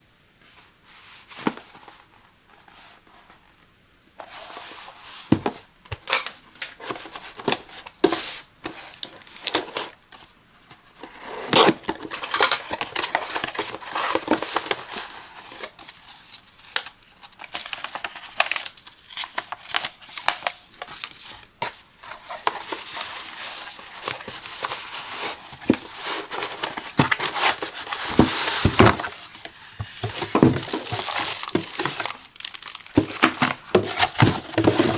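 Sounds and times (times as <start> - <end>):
packaging crinkling and tearing: 11.1 - 21.5, 22.1 - 34.9.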